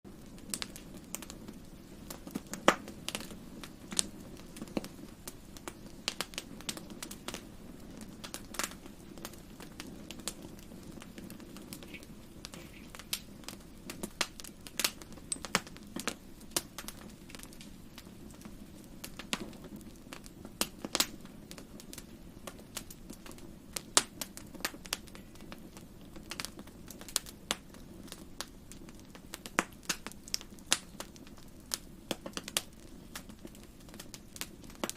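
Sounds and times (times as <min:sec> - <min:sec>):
fire crackling and popping: 0:00.1 - 0:34.9
fire flames rushing: 0:00.1 - 0:34.9.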